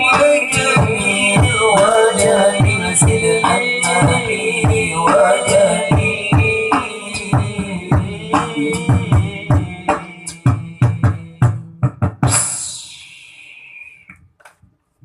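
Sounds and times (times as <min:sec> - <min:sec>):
drums beating a steady rhythm: 0:00.0 - 0:13.0.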